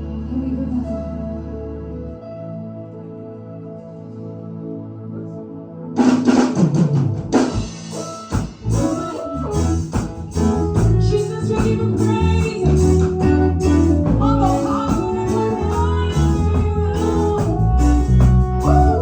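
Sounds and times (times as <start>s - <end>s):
up-tempo praise band music: 6.0s - 19.0s.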